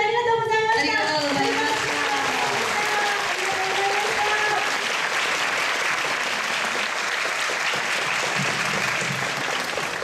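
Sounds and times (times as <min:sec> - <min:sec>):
woman's voice: 0:00.0 - 0:04.7
audience applauding: 0:01.0 - 0:10.0.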